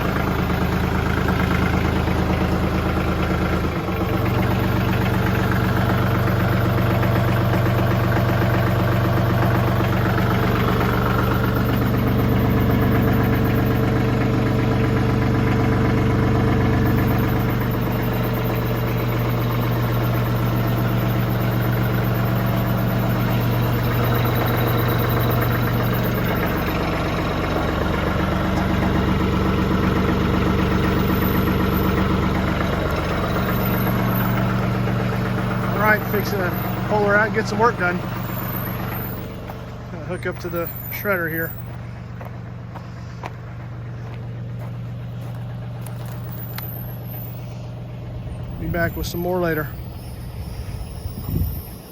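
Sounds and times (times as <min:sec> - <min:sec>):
tractor diesel engine idling: 0:00.0 - 0:51.9.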